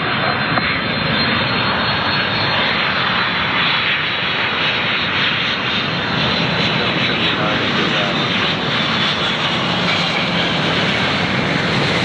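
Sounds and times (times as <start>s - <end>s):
jet engines of passing plane: 0.0s - 12.0s.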